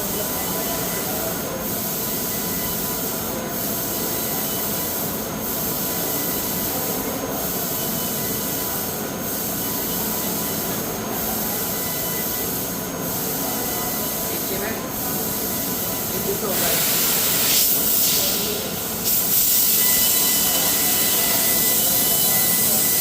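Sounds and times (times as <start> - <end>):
laser cutting machine hissing: 0.0 - 23.0.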